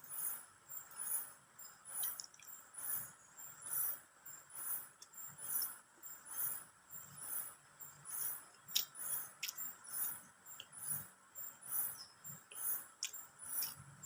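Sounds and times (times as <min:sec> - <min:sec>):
insects chirping: 0:00.0 - 0:14.0
close-up chewing: 0:08.6 - 0:09.8, 0:12.3 - 0:14.0.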